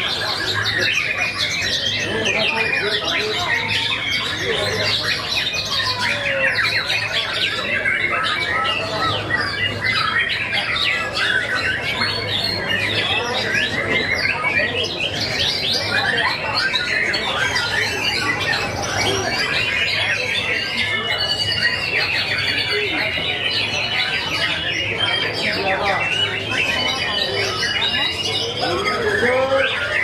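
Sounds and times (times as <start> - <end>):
songbirds singing: 0.0 - 30.0.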